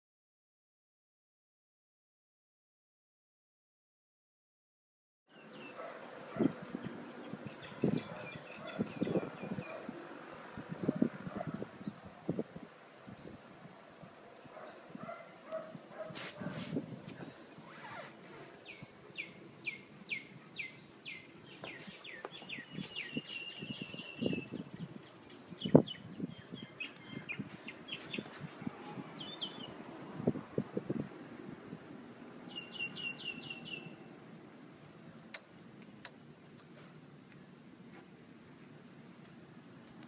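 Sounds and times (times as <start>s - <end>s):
birds chirping: 5.3s - 12.4s, 17.1s - 29.9s, 32.2s - 34.1s.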